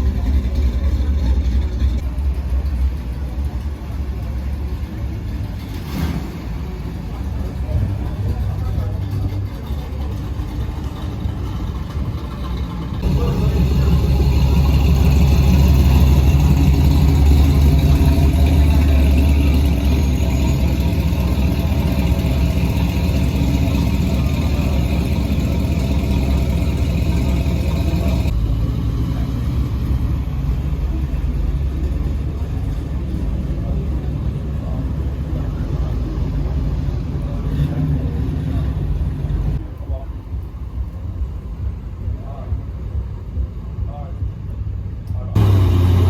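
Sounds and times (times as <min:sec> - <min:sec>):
car engine running: 0:00.0 - 0:28.8, 0:45.4 - 0:46.0.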